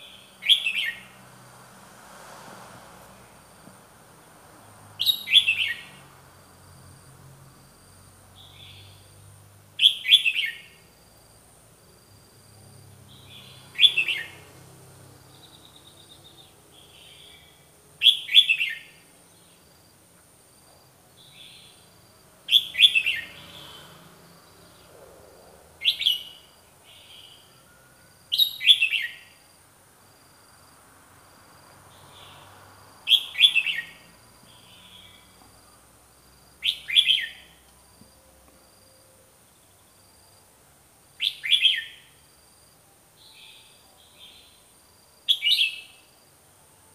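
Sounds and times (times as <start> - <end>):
bird singing loud phrases: 0.0 - 1.1, 5.0 - 6.0, 9.8 - 10.7, 13.1 - 14.5, 15.3 - 19.5, 22.5 - 24.0, 25.8 - 27.5, 28.3 - 29.3, 33.1 - 35.3, 36.6 - 37.5, 41.2 - 42.1, 45.3 - 46.0.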